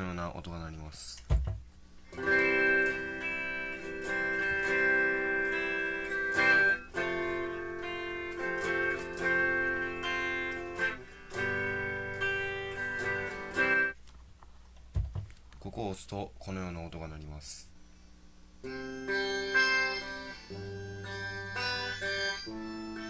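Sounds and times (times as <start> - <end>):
guitar-like melody from sound device: 2.0 - 14.0, 18.6 - 23.0.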